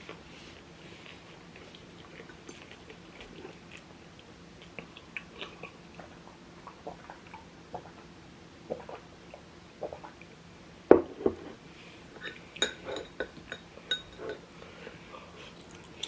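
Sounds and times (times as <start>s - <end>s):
person chewing food: 1.0s - 6.1s.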